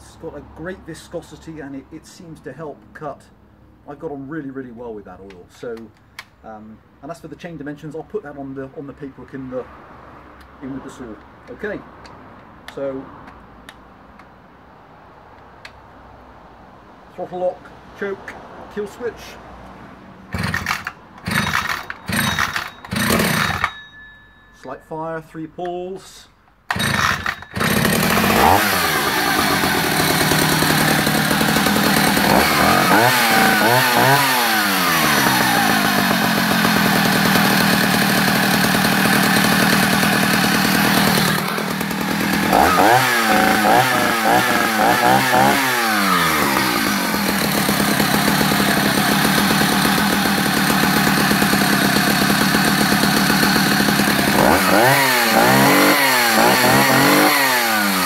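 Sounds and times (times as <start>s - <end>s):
chainsaw running with throttle blips: 20.3s - 23.8s, 26.7s - 58.0s.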